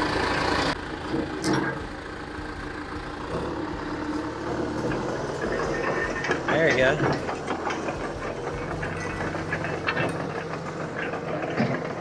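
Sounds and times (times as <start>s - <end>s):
heavy equipment engine running: 0.0s - 12.0s
metallic clanks: 0.8s - 12.0s.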